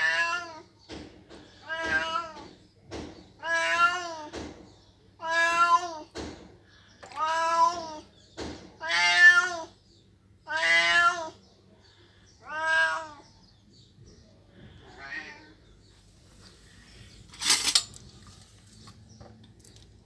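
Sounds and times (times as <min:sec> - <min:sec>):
cat meowing: 0:00.0 - 0:00.7, 0:01.6 - 0:02.4, 0:03.4 - 0:04.3, 0:05.2 - 0:06.1, 0:07.1 - 0:08.0, 0:08.8 - 0:09.7, 0:10.5 - 0:11.4, 0:12.4 - 0:13.3.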